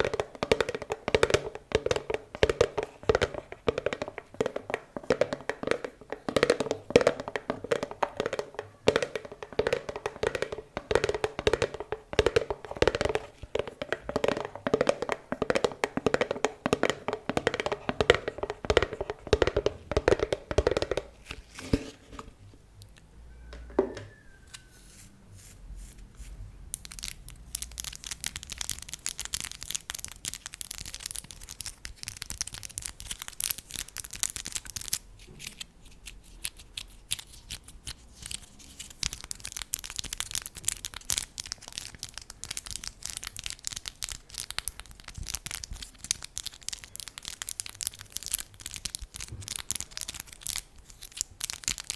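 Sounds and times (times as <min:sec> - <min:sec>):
fingertip tapping on hollow object: 0:00.0 - 0:21.1
brief squeak: 0:23.3 - 0:24.8.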